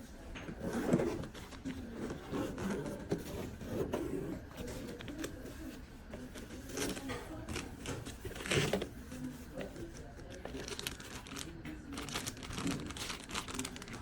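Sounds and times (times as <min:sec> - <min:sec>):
packaging rustling: 0:04.5 - 0:14.0.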